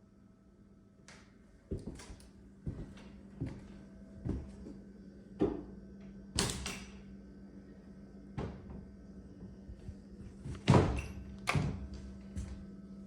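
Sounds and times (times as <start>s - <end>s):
steady low hum: 0.0s - 13.0s
footsteps and knocks: 1.7s - 4.8s, 9.7s - 12.7s.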